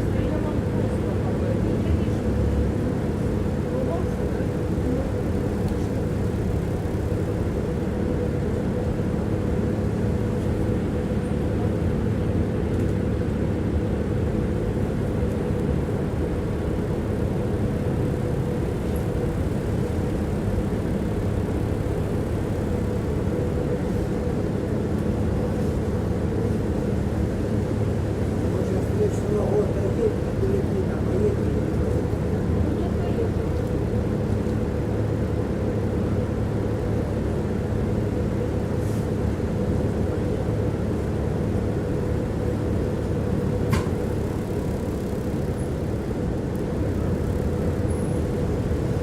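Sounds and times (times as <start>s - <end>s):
low hum: 0.0s - 10.7s
tram rumbling on track: 0.0s - 49.0s.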